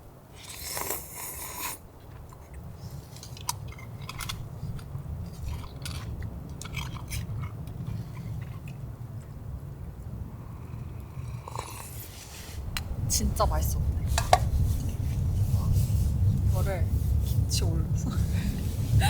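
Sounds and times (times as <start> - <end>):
person chewing and crunching: 0.4 - 8.9
low steady rumble: 1.8 - 19.0.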